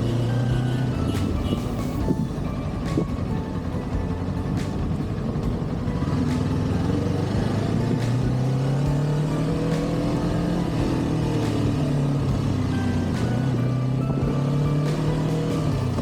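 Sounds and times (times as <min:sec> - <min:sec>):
motorcycle engine running: 0:00.0 - 0:16.0
wind noise: 0:01.0 - 0:05.9.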